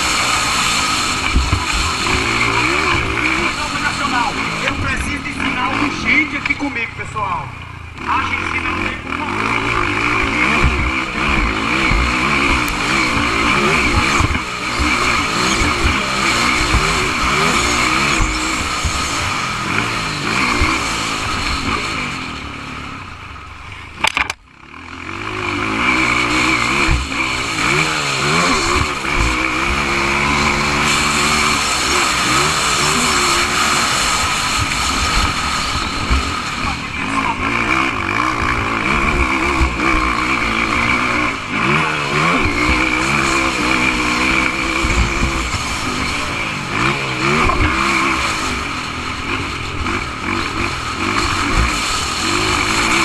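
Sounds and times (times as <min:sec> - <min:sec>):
motorcycle engines revving: 0:00.0 - 0:53.0
sharp click: 0:23.7 - 0:24.5.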